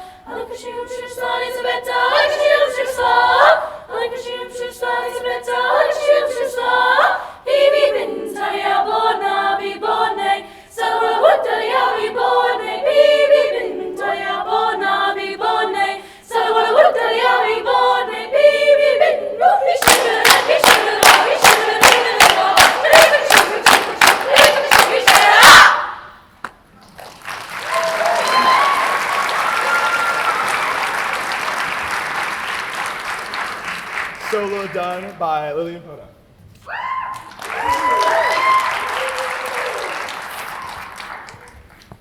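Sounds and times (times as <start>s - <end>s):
treble choir singing a cappella: 0.0s - 26.3s.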